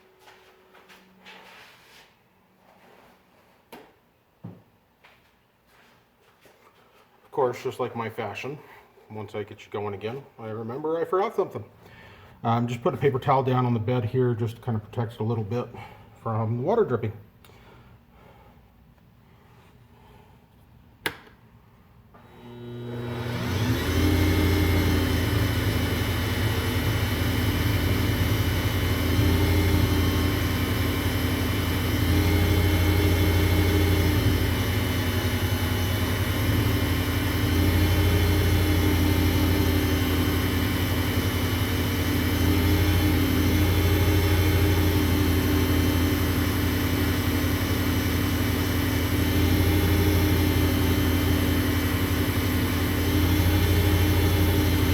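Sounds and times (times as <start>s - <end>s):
lathe motor humming: 22.2s - 54.9s.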